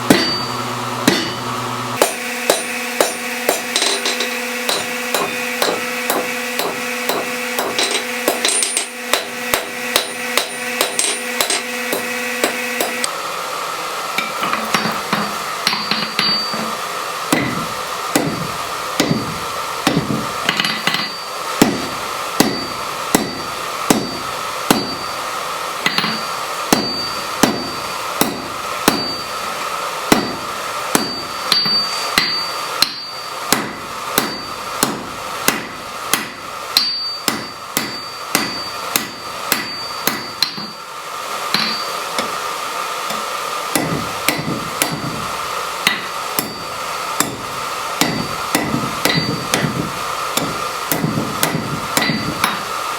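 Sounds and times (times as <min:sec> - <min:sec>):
hammer striking metal on anvil: 0:00.0 - 0:13.1, 0:14.2 - 0:25.2, 0:25.8 - 0:40.8, 0:41.5 - 0:42.4, 0:43.1 - 0:52.7
ringing metal tone: 0:00.1 - 0:01.5, 0:15.7 - 0:16.8, 0:20.6 - 0:21.4, 0:25.9 - 0:28.0, 0:28.9 - 0:29.4, 0:30.9 - 0:34.7, 0:36.8 - 0:40.8, 0:41.6 - 0:42.0, 0:46.4 - 0:46.8.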